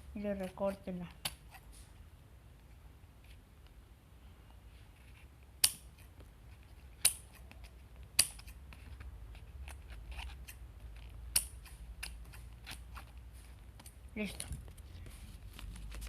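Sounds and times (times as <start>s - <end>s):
scissors snipping paper: 5.6s - 14.6s.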